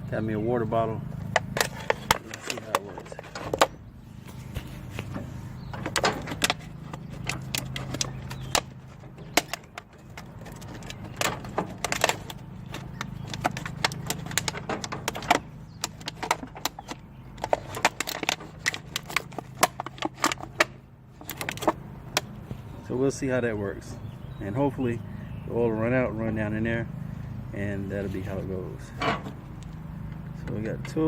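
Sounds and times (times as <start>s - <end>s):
steady low hum: 0.0s - 31.0s
plastic bottle clicks and rattles: 5.8s - 22.3s.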